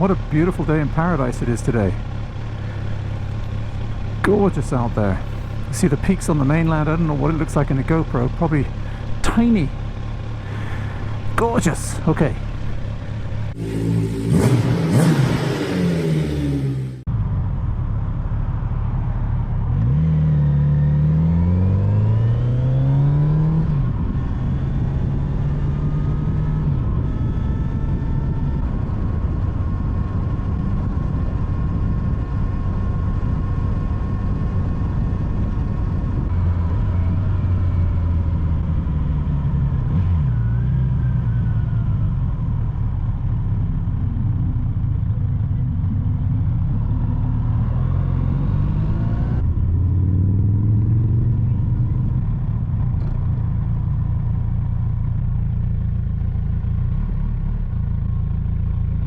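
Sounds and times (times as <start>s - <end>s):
motorcycle engine accelerating: 0.0s - 59.0s
wind noise: 23.5s - 36.4s.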